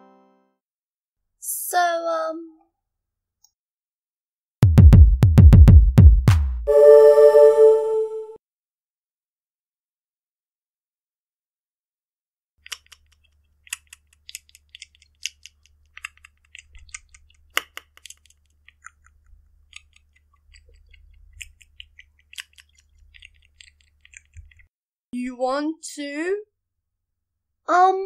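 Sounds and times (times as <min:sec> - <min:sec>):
crunchy chewing: 0:12.7 - 0:24.7.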